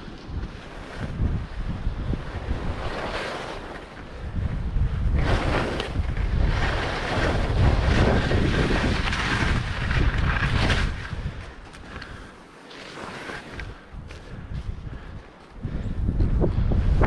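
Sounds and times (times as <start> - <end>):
wind buffeting microphone: 0.0 - 12.3, 13.4 - 17.0
skis hissing over snow: 0.4 - 4.3, 5.1 - 11.3, 12.5 - 14.3.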